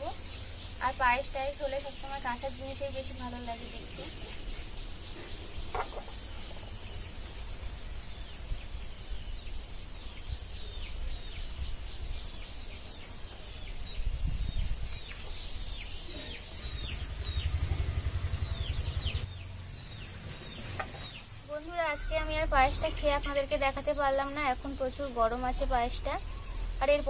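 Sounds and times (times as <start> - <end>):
birds chirping: 0.0 - 27.0
low rumble: 16.2 - 20.7.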